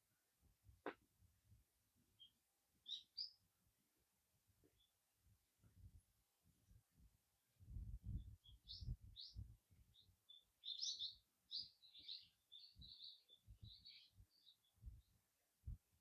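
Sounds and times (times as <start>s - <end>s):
small birds chirping: 2.2s - 3.4s, 7.8s - 15.1s.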